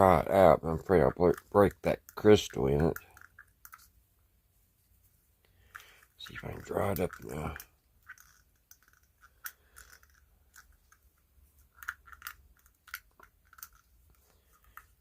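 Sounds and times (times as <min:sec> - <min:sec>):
small clicks and taps: 0:05.7 - 0:15.0.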